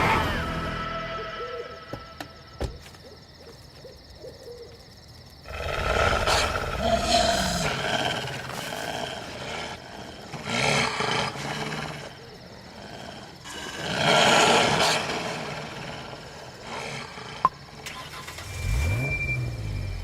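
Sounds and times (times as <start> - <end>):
big cat roaring: 5.5 - 17.4.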